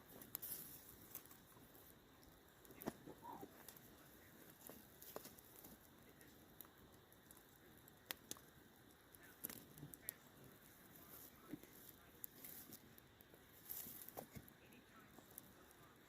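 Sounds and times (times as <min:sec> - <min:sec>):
faint clicks: 0:02.2 - 0:10.2.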